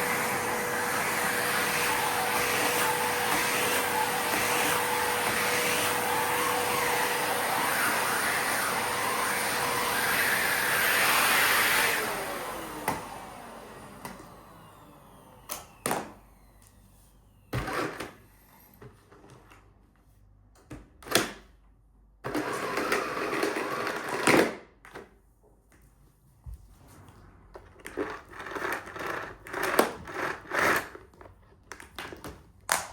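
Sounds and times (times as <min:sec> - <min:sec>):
vacuum cleaner motor winding down: 0:00.0 - 0:16.8, 0:22.3 - 0:24.6, 0:27.6 - 0:31.0.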